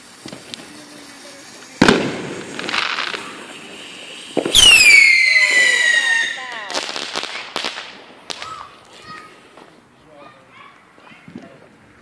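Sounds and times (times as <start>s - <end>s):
fireworks banging: 0.0s - 9.9s
crackling hiss: 0.0s - 10.0s
shrill falling whistle: 4.5s - 6.2s.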